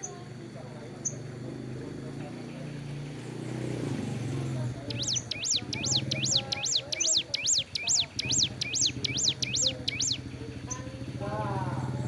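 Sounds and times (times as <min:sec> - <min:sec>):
bird singing sharp notes: 0:02.6 - 0:11.2.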